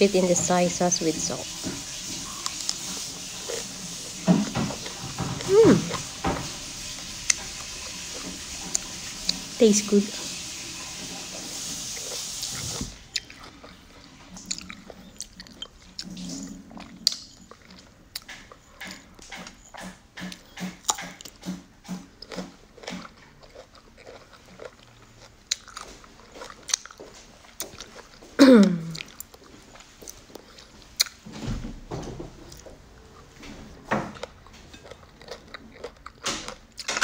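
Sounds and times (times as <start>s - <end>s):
crisp crunching of fruit: 22.2s - 31.2s.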